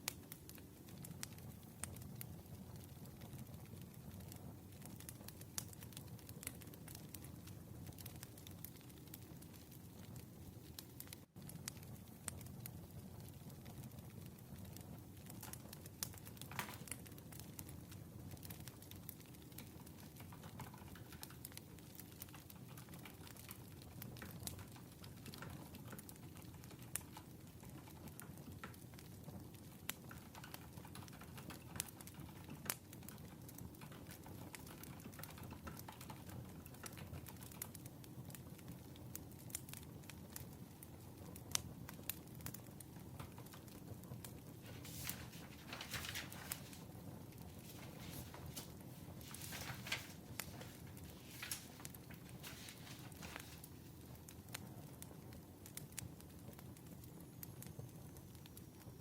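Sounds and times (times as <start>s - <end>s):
wood fire crackling: 0.0s - 59.0s
brief rustle: 47.7s - 53.6s.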